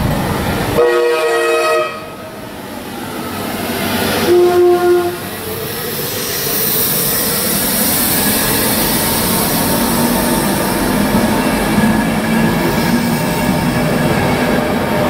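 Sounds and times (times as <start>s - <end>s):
train passing at speed: 0.0s - 15.0s
train horn: 0.8s - 2.2s, 4.2s - 5.4s
high hiss: 5.2s - 11.7s.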